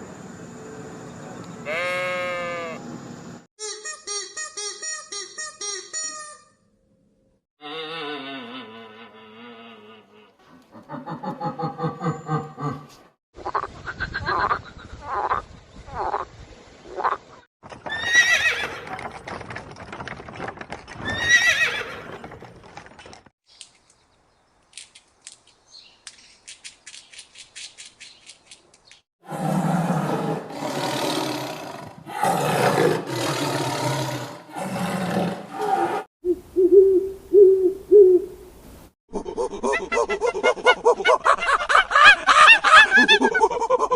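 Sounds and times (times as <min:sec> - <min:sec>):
horses neighing: 0:17.9 - 0:19.1, 0:21.0 - 0:22.6, 0:29.3 - 0:36.1.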